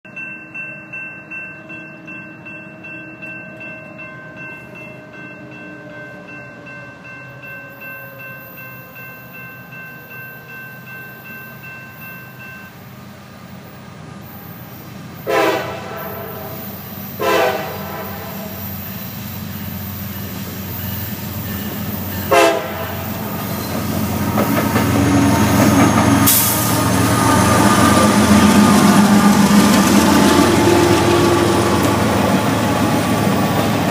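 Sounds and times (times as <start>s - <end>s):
train engine rumble: 0.1s - 33.9s
locomotive air horn blasts: 15.2s - 18.9s, 22.2s - 23.4s.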